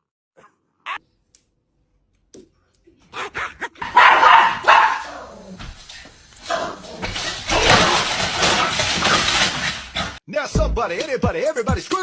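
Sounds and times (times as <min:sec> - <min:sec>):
dog barking: 0:03.8 - 0:05.3.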